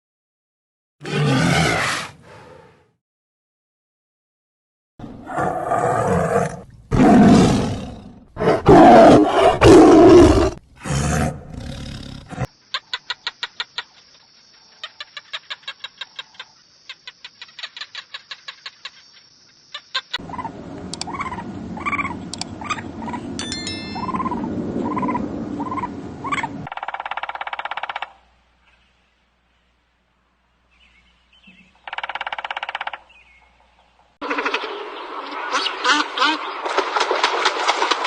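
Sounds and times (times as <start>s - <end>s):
steady high tone: 23.4s - 25.4s.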